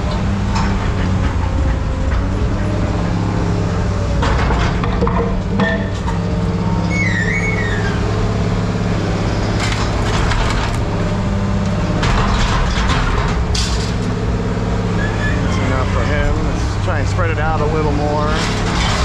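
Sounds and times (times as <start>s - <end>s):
diesel engine running: 0.0s - 19.0s
high metal squeal: 6.8s - 8.3s, 14.9s - 16.3s
scrap metal crushing and tearing: 9.6s - 10.9s, 12.0s - 14.2s, 18.3s - 19.0s.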